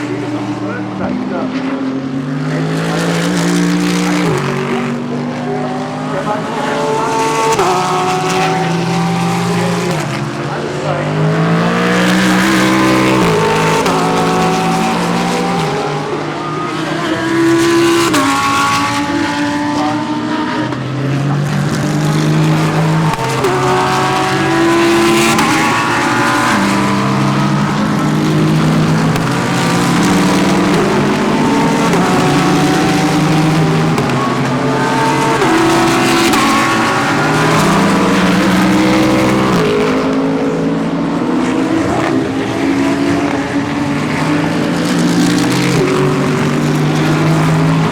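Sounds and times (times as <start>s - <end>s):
engines shifting gears: 0.0s - 47.9s
race car engines: 0.0s - 47.9s.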